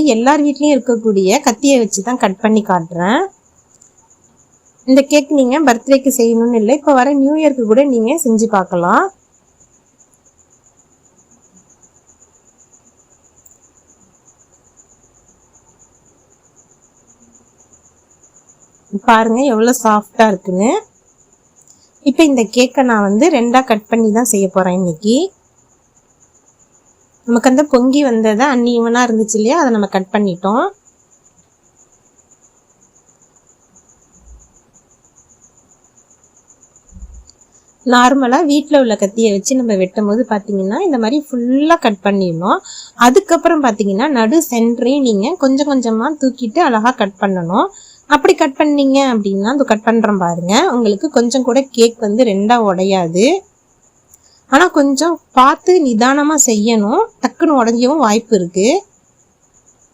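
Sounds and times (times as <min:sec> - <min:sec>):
cricket trilling: 0:00.0 - 0:59.9
soft low thump: 0:36.9 - 0:37.3.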